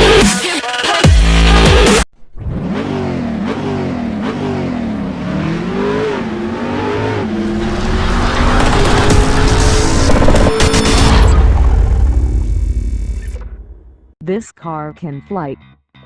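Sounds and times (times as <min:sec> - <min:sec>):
loud electronic music: 0:00.0 - 0:02.0, 0:08.2 - 0:11.4
car engine revving: 0:02.3 - 0:13.9.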